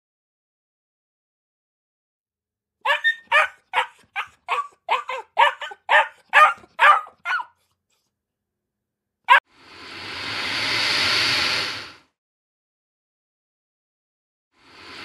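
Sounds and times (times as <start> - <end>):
puppy yapping: 2.8 - 7.6.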